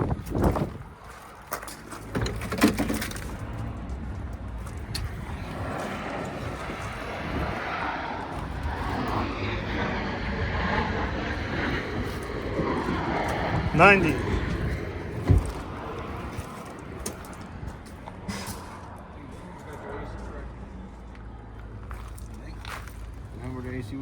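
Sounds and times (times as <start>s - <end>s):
jet aircraft rushing overhead: 3.3s - 21.8s.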